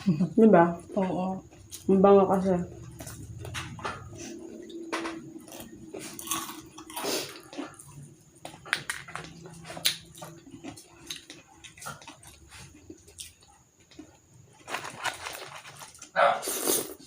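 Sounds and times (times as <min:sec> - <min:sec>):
crunching fried chicken skin: 0:05.4 - 0:17.0.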